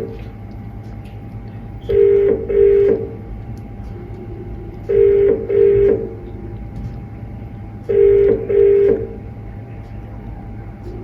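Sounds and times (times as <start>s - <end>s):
telephone ringing tone: 1.9s - 3.2s, 4.9s - 6.2s, 7.9s - 9.2s.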